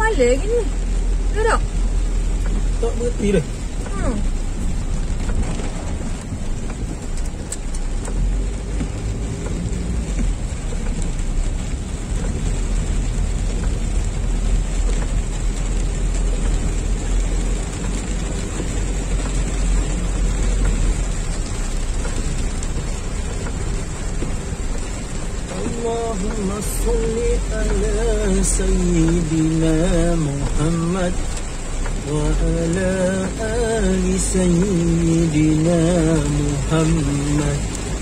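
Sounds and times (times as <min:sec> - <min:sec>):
car driving on wet road: 0:00.0 - 0:38.0
heavy rain on a car roof: 0:00.0 - 0:38.0.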